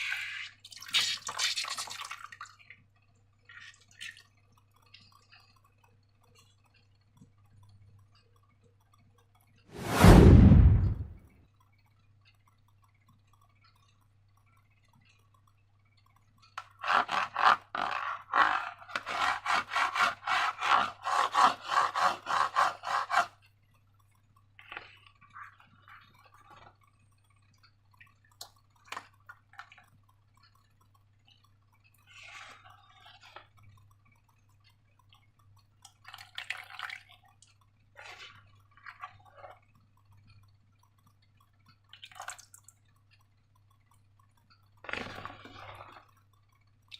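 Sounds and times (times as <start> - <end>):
slime squelching: 44.6 - 46.9.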